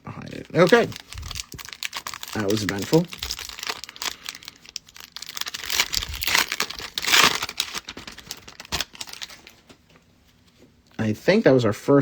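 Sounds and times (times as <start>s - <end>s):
plastic foil wrapper crinkling: 0.2s - 9.8s.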